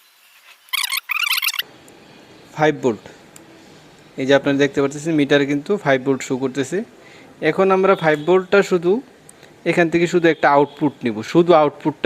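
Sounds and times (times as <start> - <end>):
small animal chirping: 0.7 - 1.6.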